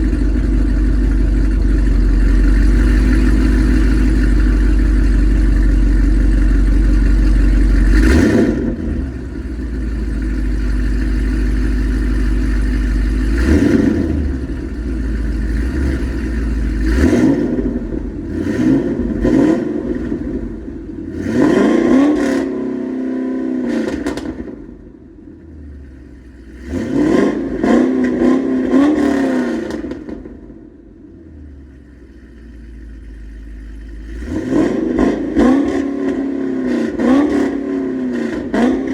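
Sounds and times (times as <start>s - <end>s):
exhaust cracks: 0.0s - 20.6s
car engine idling and revving: 0.0s - 38.9s.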